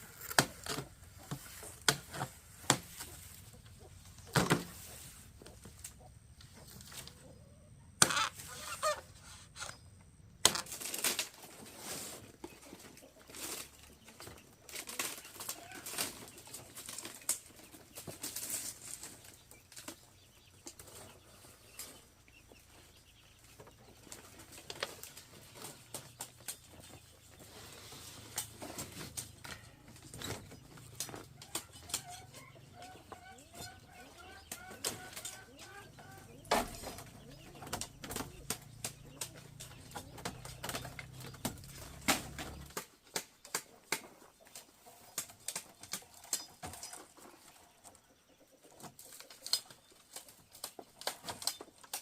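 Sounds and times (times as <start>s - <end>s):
chickens clucking: 0.0s - 52.0s
knocks and rustles: 10.4s - 33.7s, 36.3s - 48.0s.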